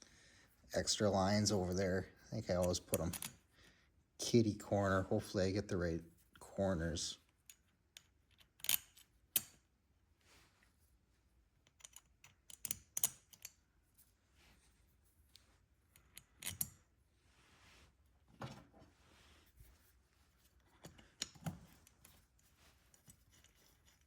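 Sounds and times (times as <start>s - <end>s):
small metal parts clicking: 7.3s - 9.6s, 11.6s - 13.6s, 15.9s - 16.8s.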